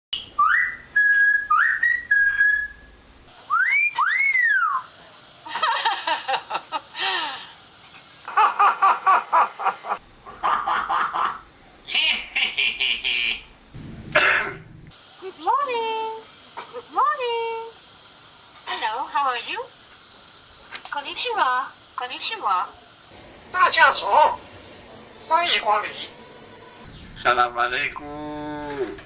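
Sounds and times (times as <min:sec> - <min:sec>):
myna whistling and chattering: 0:03.5 - 0:05.0.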